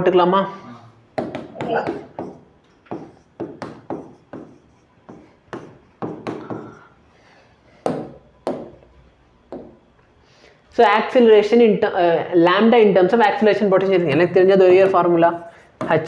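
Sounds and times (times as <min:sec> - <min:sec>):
writing taps on hard surface: 0:01.2 - 0:06.8.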